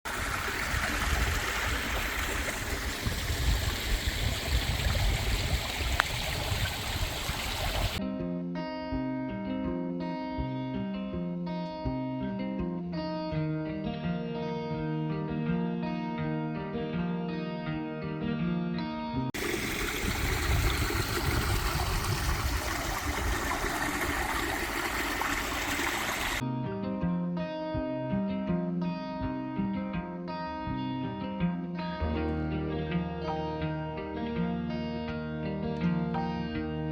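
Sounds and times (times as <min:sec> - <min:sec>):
stream rushing: 0:00.1 - 0:08.0, 0:19.4 - 0:26.4
acoustic guitar music: 0:08.0 - 0:19.2, 0:26.4 - 0:36.9.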